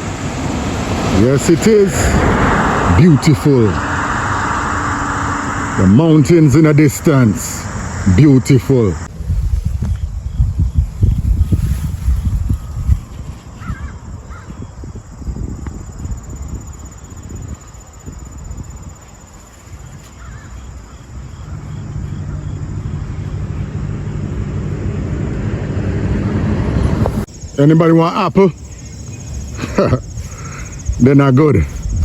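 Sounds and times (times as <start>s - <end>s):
wind rumble on microphone: 0.0s - 8.2s, 8.9s - 27.6s, 28.5s - 32.0s
caw-like bird calls: 13.6s - 14.7s, 20.1s - 22.6s.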